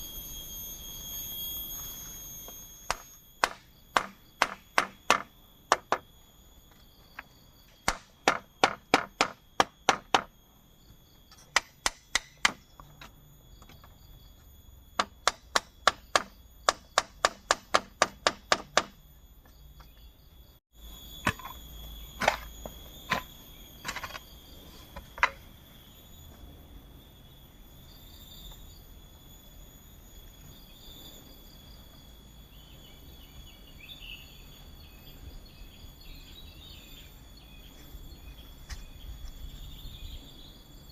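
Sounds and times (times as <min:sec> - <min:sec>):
forest insects droning: 0:00.0 - 0:40.9
sharp strikes on bamboo: 0:02.9 - 0:06.0, 0:07.8 - 0:10.3, 0:11.5 - 0:12.6, 0:15.0 - 0:19.0.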